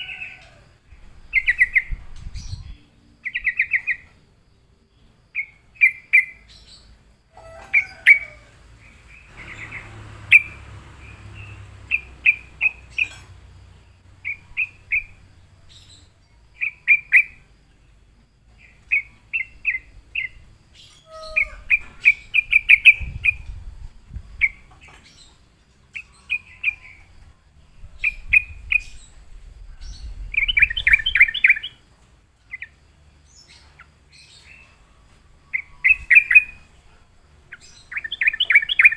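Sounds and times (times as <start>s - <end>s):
bird chirping: 0.0s - 38.9s
low rumble: 8.5s - 16.1s.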